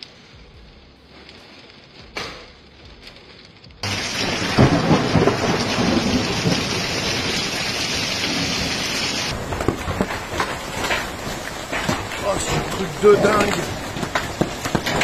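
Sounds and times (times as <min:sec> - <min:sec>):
heavy rain and hail pounding: 0:03.8 - 0:15.0
hailstone knocks: 0:09.3 - 0:15.0.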